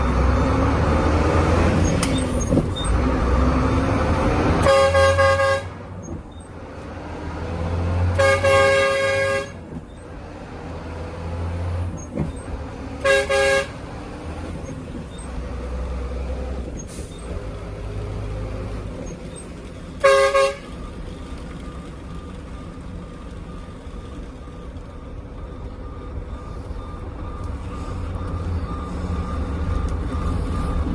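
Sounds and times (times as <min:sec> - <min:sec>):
diesel engine rumbling: 0:00.0 - 0:30.9
truck horn honking: 0:04.4 - 0:06.0, 0:08.1 - 0:09.7, 0:12.8 - 0:14.1, 0:20.0 - 0:20.9.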